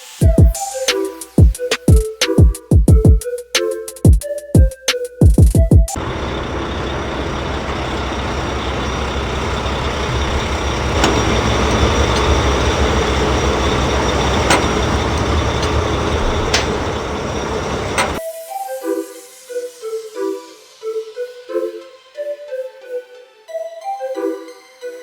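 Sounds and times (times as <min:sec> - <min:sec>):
sharp clicks: 0:06.0 - 0:18.2
truck engine rumbling: 0:06.0 - 0:18.2.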